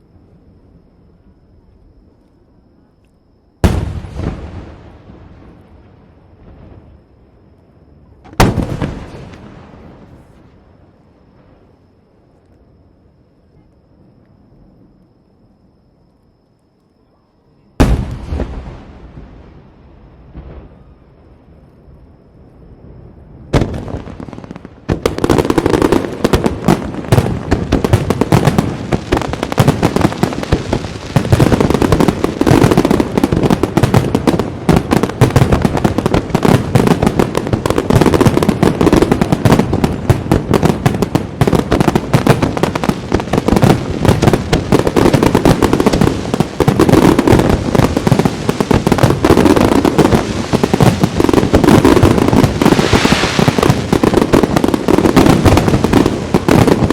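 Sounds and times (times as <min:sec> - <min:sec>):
fireworks bursting and crackling: 0:03.6 - 0:07.0, 0:08.2 - 0:10.6, 0:17.8 - 0:20.9, 0:23.5 - 0:56.9.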